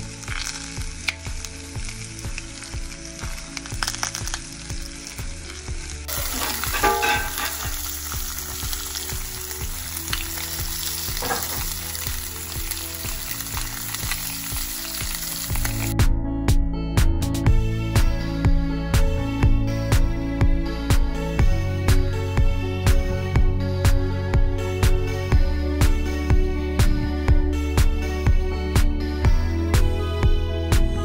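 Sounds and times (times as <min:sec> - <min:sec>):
fish sizzling in a pan: 0:00.0 - 0:15.9.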